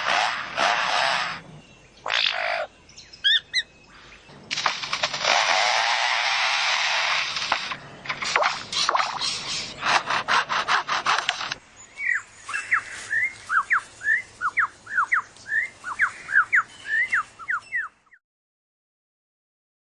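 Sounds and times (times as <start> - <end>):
bird mimicking a chainsaw: 0.0 - 2.7, 4.5 - 11.6
bird whistling: 3.0 - 3.7, 11.9 - 18.2.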